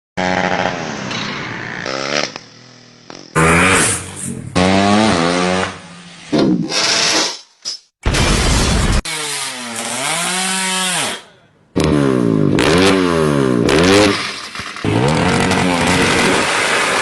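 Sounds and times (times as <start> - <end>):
engine revving: 0.2 - 7.1, 11.8 - 17.0.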